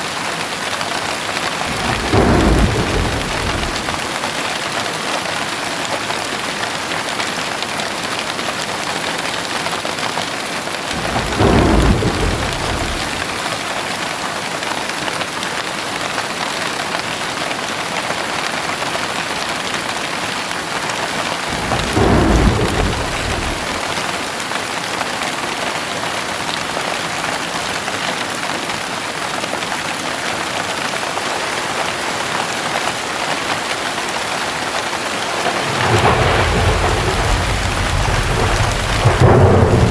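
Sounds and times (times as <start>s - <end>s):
heavy rain falling: 0.0s - 39.9s
thunder rolling: 1.4s - 5.3s, 10.9s - 14.0s, 21.4s - 24.3s, 35.1s - 39.9s.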